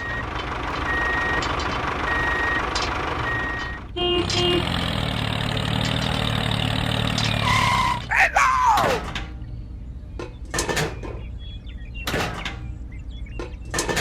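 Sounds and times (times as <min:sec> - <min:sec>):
reversing alarm beeping: 0:00.0 - 0:04.6
engine low hum: 0:00.0 - 0:14.0
engine running: 0:00.0 - 0:14.0.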